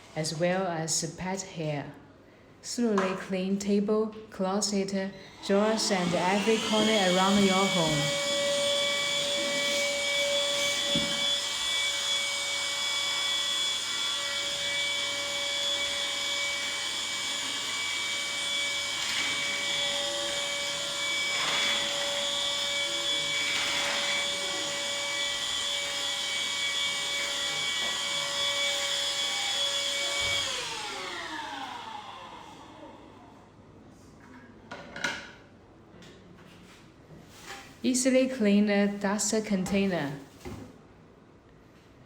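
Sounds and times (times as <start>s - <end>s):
handheld vacuum cleaner whine: 5.3s - 33.4s
vacuum motor winding down: 5.4s - 33.3s.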